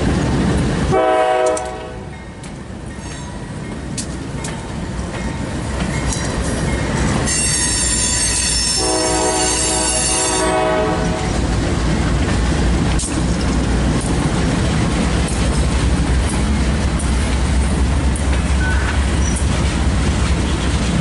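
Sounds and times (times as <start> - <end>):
diesel locomotives rumbling past: 0.0 - 21.0
train horn chord: 0.9 - 2.1, 7.3 - 11.4
wheels squealing on rails: 2.9 - 3.6, 5.3 - 11.4, 14.7 - 21.0.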